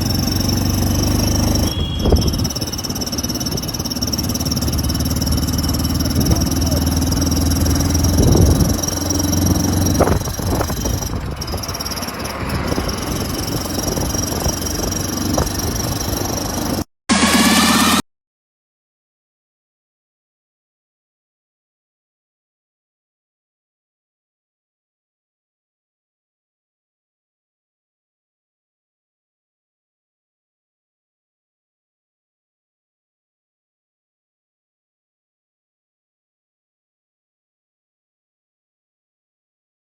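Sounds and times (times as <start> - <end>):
motorcycle exhaust running: 0.0 - 18.0.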